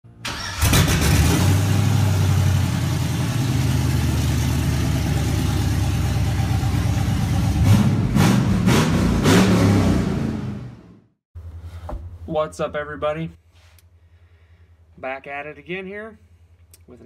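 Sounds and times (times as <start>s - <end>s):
car engine idling and revving: 0.4s - 11.1s.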